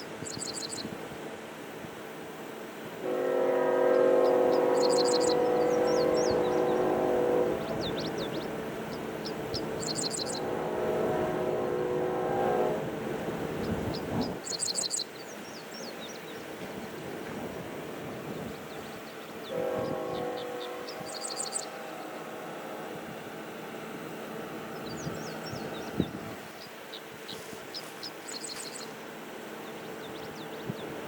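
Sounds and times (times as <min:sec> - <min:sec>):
passing train rumble: 0:00.0 - 0:31.0
locomotive horn blasts: 0:03.0 - 0:14.4, 0:19.4 - 0:26.5
birds chirping: 0:03.2 - 0:17.3, 0:18.3 - 0:31.0.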